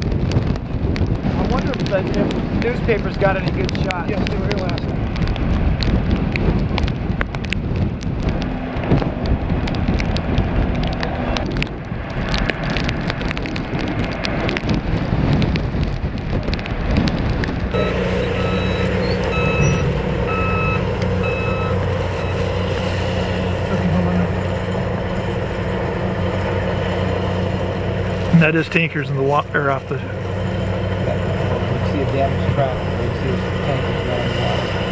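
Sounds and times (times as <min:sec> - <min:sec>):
heavy vehicle engine running: 0:00.0 - 0:34.9
rough crackling outdoor noise: 0:00.0 - 0:34.9
reversing alarm beeping: 0:17.8 - 0:22.5.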